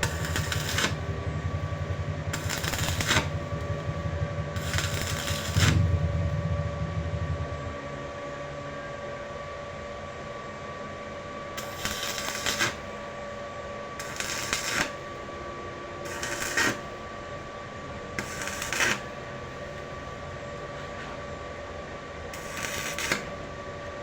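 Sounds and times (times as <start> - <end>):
electric arc welding crackle: 0.0 - 6.0, 11.6 - 12.8, 14.0 - 15.0, 16.1 - 16.9, 18.2 - 19.1, 22.4 - 23.3
steady hum: 0.0 - 21.1.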